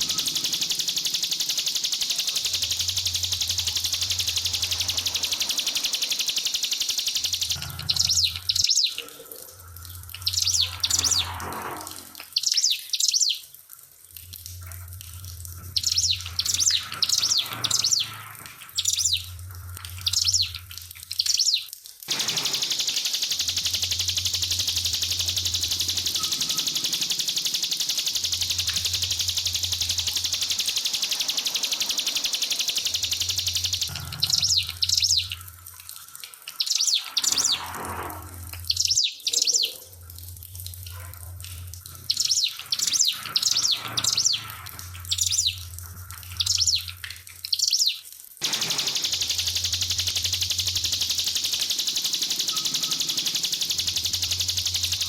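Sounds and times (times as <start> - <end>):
bird chirping high sharp notes: 0.0 - 9.0, 10.2 - 11.4, 15.8 - 18.1, 20.0 - 20.6, 21.2 - 35.4, 47.6 - 55.0
high buzzing bird trill: 0.0 - 9.1, 10.1 - 11.5, 15.6 - 35.5, 36.6 - 37.9, 42.0 - 47.0, 47.6 - 55.0
trickling water: 0.0 - 55.0.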